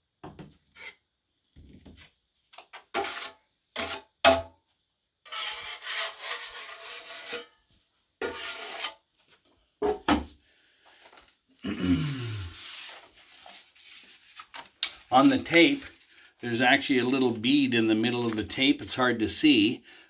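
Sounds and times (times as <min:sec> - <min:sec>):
drywall knife scraping: 0:02.9 - 0:04.1, 0:05.3 - 0:07.6, 0:08.2 - 0:09.0.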